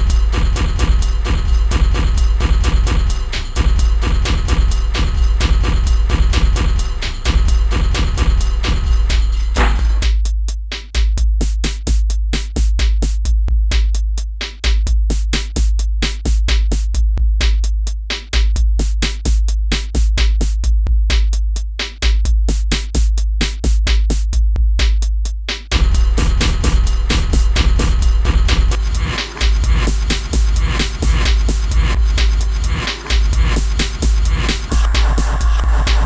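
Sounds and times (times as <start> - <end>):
crisp hi-hat clicks: 0.0 - 10.1, 25.7 - 36.0
deep booming bass notes: 0.0 - 10.1, 25.7 - 36.0.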